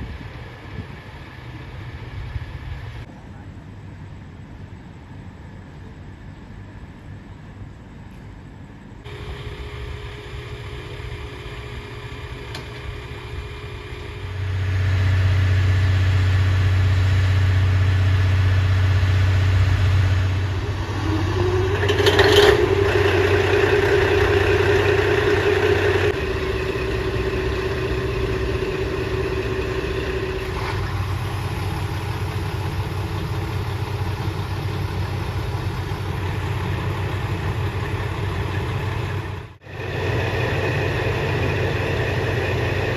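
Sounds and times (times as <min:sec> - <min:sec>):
diesel train engine humming: 0:00.0 - 0:03.1, 0:09.1 - 0:42.9
rising tone: 0:09.1 - 0:34.0.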